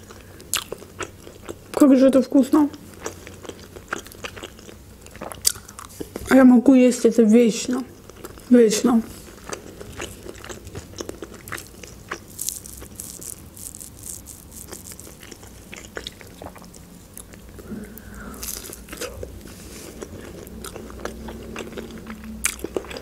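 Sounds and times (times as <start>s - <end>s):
wet chewing: 2.9s - 6.4s, 7.9s - 23.0s
crunchy bites: 9.4s - 17.4s, 18.0s - 19.3s.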